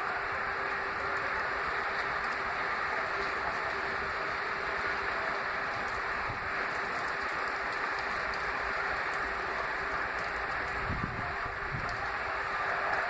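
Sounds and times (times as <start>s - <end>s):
snowstorm hiss: 0.0s - 13.0s.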